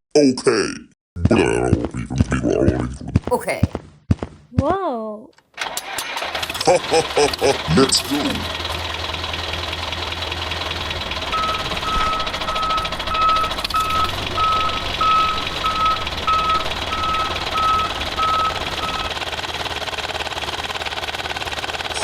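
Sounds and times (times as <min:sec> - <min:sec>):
engine running: 0:06.2 - 0:22.0
reversing alarm beeping: 0:10.8 - 0:19.2.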